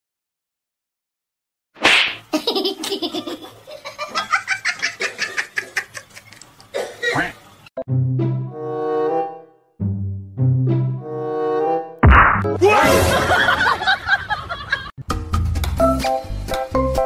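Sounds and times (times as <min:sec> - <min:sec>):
people laughing hard: 0:02.4 - 0:06.4, 0:12.9 - 0:14.9.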